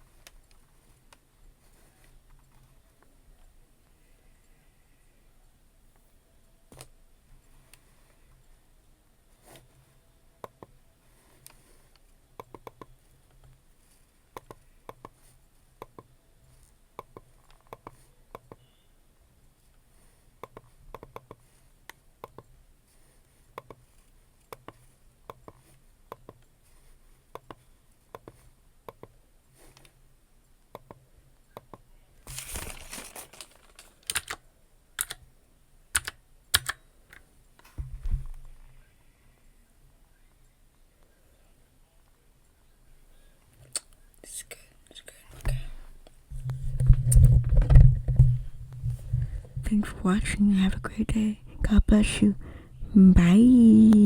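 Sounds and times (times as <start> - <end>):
computer keyboard typing: 33.8 - 34.4, 35.0 - 35.2, 36.0 - 36.8.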